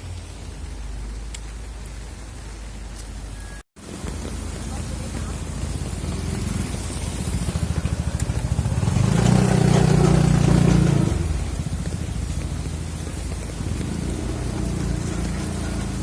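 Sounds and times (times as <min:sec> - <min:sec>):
rain hiss: 0:00.0 - 0:16.0
vehicle engine passing: 0:05.0 - 0:16.0.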